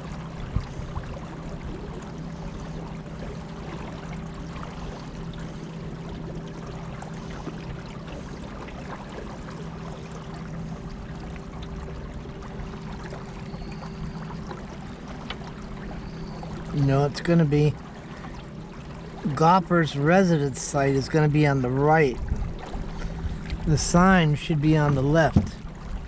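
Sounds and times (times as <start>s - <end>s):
steady low hum: 0.0s - 26.0s
river water rushing and splashing: 14.4s - 26.0s.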